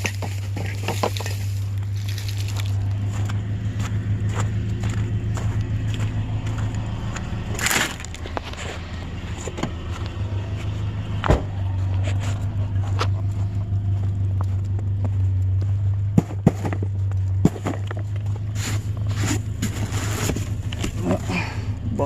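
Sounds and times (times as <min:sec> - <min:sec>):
road noise: 0:00.0 - 0:22.0
vehicle engine drone: 0:00.0 - 0:22.0.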